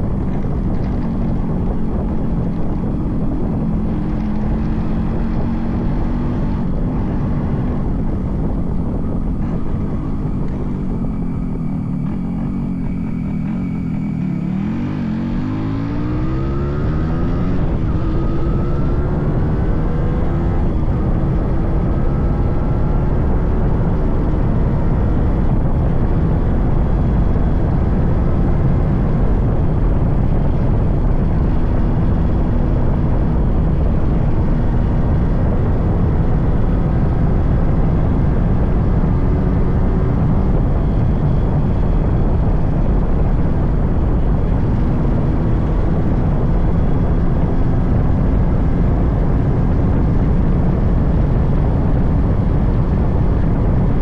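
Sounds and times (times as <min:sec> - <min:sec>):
two-stroke motorcycle engine: 0:00.0 - 0:35.7
low rush of noise: 0:00.0 - 0:54.0.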